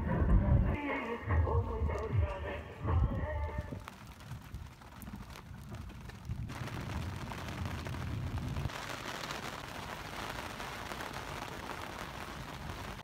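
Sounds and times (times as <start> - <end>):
deep low rumble: 1.6 - 8.7
heavy rain hissing: 6.5 - 13.0.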